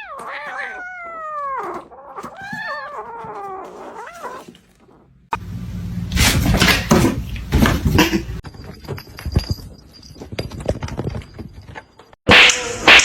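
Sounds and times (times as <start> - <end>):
cat meowing: 0.0 - 5.0.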